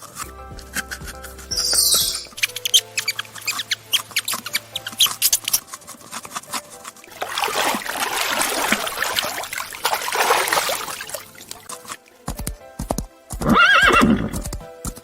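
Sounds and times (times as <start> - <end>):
water splashing and trickling: 0.0 - 14.2.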